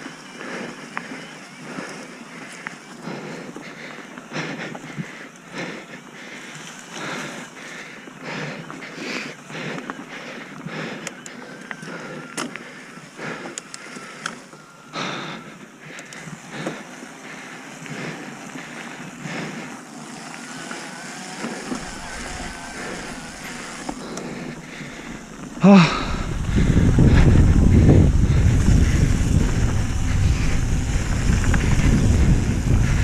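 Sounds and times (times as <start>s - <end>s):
bike tyres rolling on dirt: 0.0s - 33.0s.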